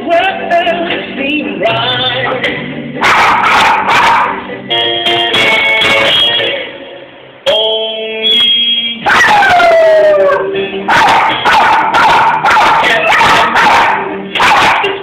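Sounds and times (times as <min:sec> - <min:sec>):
music tones: 0:04.4 - 0:08.6
dog howling: 0:09.1 - 0:14.9.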